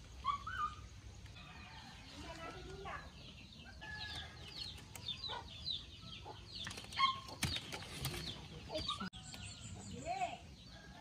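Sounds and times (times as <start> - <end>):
birds chirping falling notes: 0.0 - 10.9.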